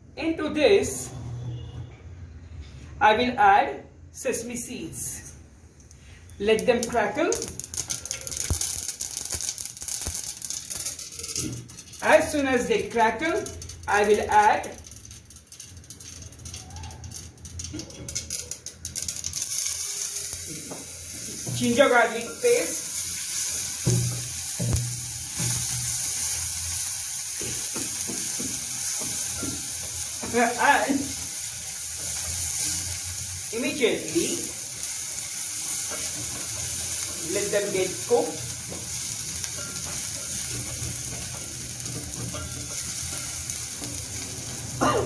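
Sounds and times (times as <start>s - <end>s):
garlic sizzling in oil: 6.6s - 16.6s, 18.2s - 45.0s
spatula stirring pan: 19.4s - 33.6s, 34.2s - 44.8s.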